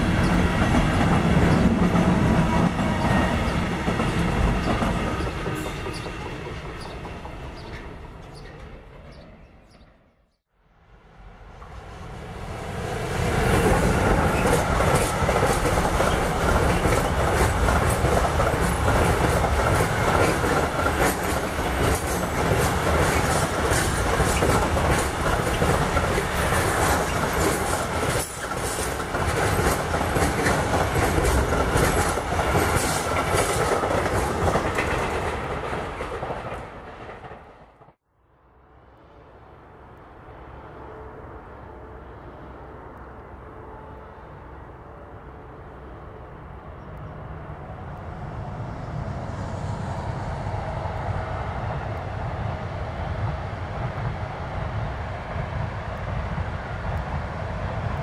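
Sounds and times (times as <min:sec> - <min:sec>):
heavy train rumble: 0:00.0 - 0:09.9, 0:10.9 - 0:58.0
freight train wheels clattering: 0:13.9 - 0:37.5.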